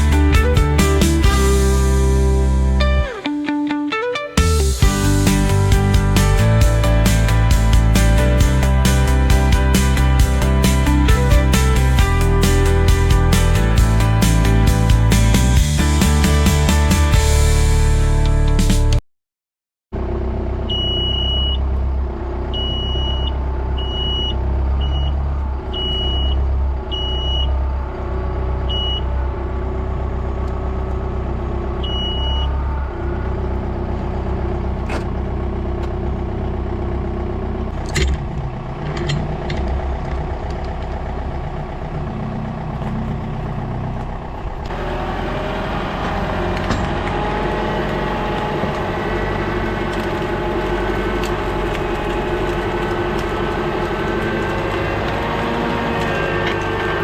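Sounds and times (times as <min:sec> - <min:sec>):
short high-pitched beeps: 0:20.7 - 0:21.6, 0:31.9 - 0:32.5
machine engine running: 0:29.1 - 0:57.0.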